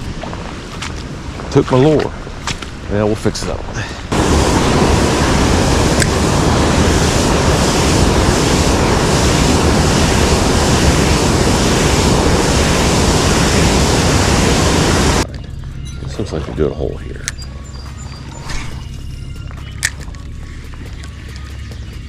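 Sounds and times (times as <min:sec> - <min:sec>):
creek water rushing: 0:03.8 - 0:15.2.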